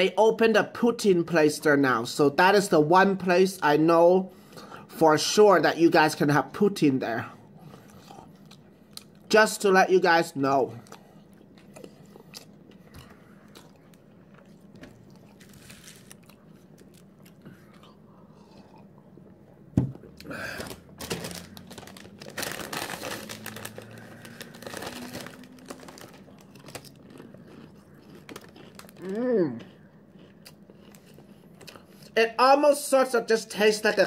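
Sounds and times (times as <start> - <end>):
crunching potato chips: 11.6 - 18.8, 20.2 - 32.1.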